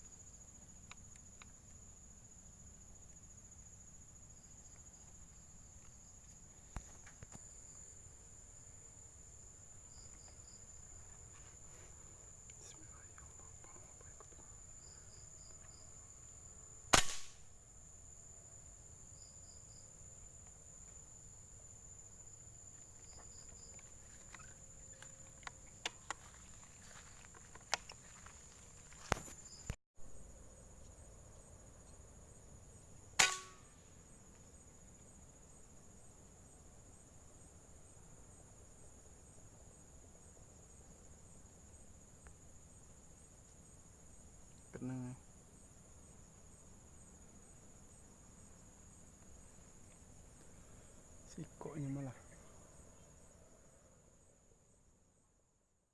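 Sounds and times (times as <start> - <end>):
high-pitched insect drone: 7.0 - 16.8, 20.9 - 29.8
sharp gunshots: 16.9 - 17.4, 33.2 - 33.6.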